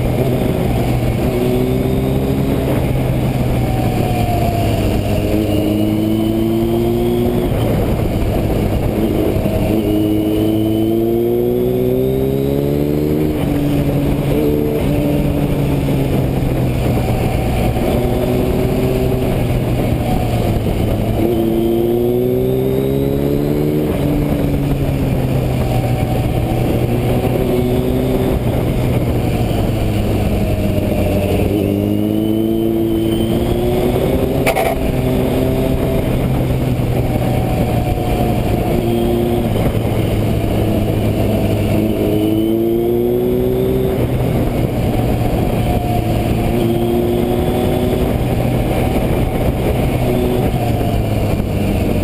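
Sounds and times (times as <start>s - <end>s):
motorcycle engine revving: 0.0s - 52.0s
wind on microphone: 0.0s - 52.0s.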